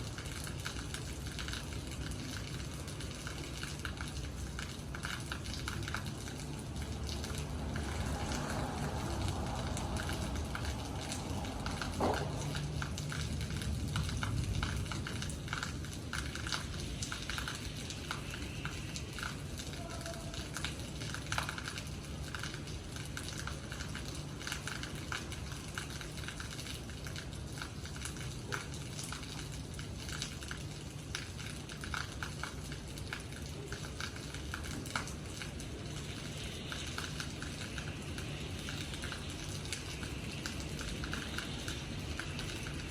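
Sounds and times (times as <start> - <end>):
rain drops striking a surface: 0.0 - 42.9.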